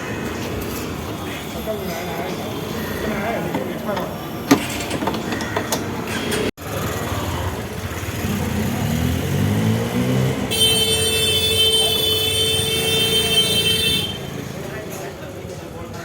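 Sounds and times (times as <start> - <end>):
motorcycle passing: 6.6 - 11.1.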